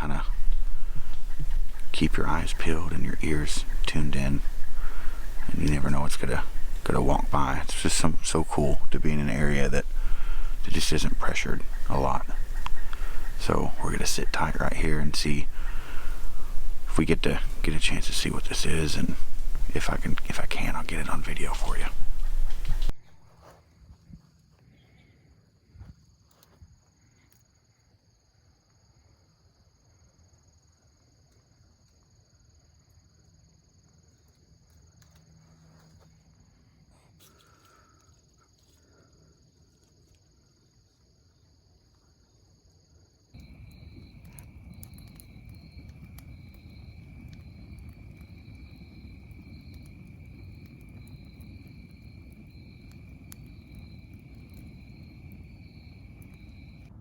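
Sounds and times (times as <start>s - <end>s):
high-pitched insect chorus: 0.0s - 57.0s
insect pulsing trill: 43.3s - 56.9s.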